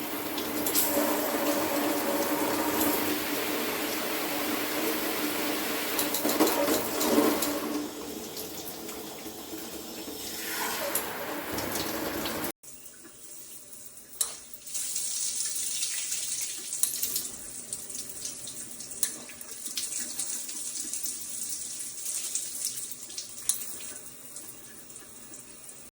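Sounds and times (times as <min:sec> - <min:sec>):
shower water spraying: 0:00.0 - 0:12.6.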